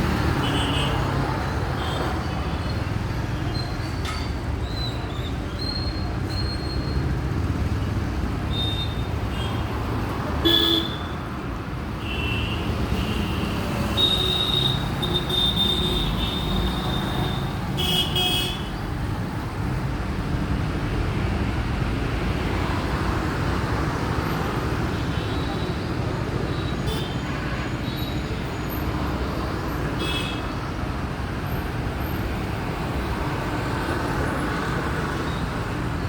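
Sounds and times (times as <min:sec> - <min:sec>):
road traffic rumble: 0:00.0 - 0:36.0.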